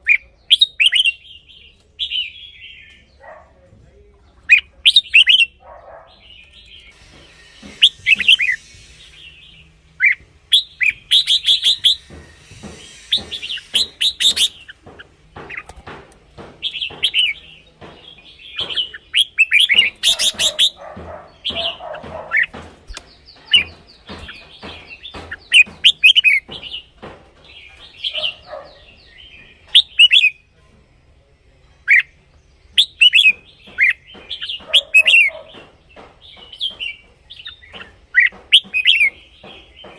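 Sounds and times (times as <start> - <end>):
bird whistled song: 0.0 - 3.0, 4.5 - 14.8, 16.6 - 26.9, 27.6 - 30.4, 31.8 - 35.6.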